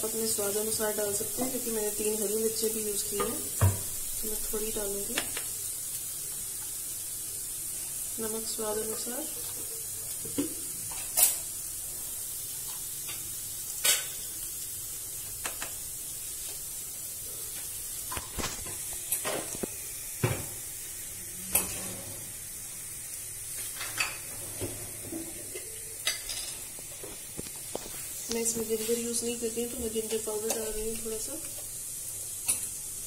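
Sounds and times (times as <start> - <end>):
spices sizzling in oil: 0.0 - 33.0
metal spatula scraping a pan: 21.5 - 22.3.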